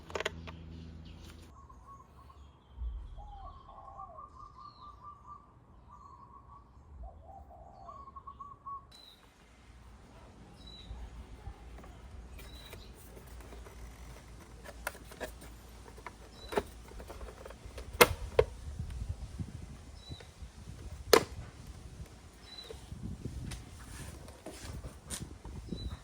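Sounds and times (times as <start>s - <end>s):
bird chirping: 0.0s - 21.1s, 22.2s - 23.4s, 25.5s - 26.0s.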